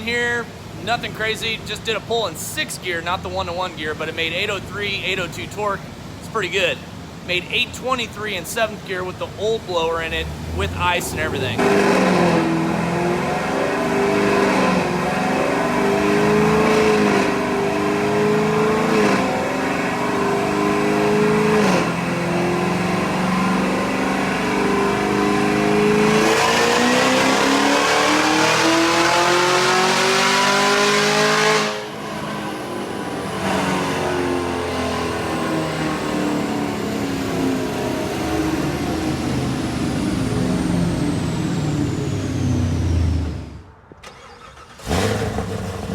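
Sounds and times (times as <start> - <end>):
supercharger whining: 10.0 - 45.9
car engine accelerating through gears: 10.2 - 45.9.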